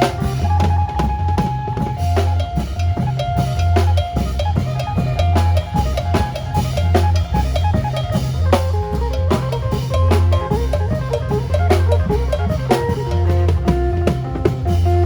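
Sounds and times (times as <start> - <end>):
deep bass notes: 0.0 - 15.0
drum kit beat: 0.0 - 15.0.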